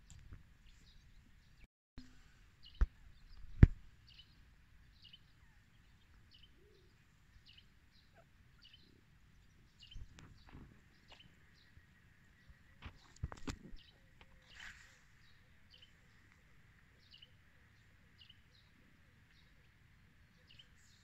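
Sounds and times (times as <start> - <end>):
small bird chirping: 2.6 - 17.4.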